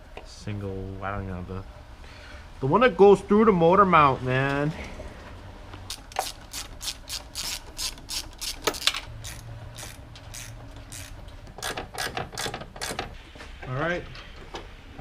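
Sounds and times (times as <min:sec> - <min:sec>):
socket ratchet clicking: 0:05.9 - 0:13.1.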